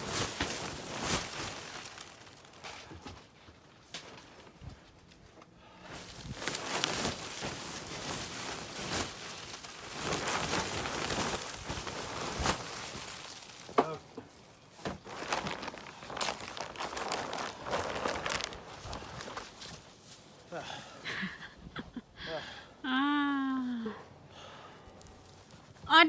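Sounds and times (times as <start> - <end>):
crunching and scraping in snow: 0.0 - 2.9, 5.9 - 20.4.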